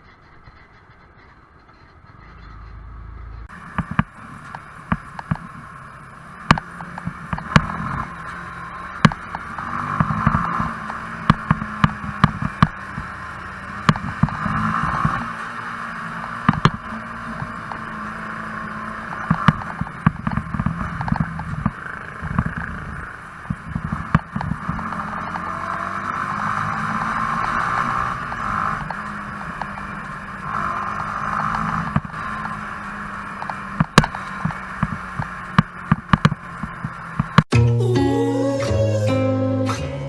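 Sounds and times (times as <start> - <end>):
motorcycle engine running: 0.0 - 37.5
wind and road noise: 0.0 - 37.5
sharp clicks and knocks: 3.4 - 5.8, 6.4 - 13.2, 13.8 - 15.4, 16.2 - 17.9, 19.0 - 30.7, 31.3 - 32.7, 33.3 - 37.5.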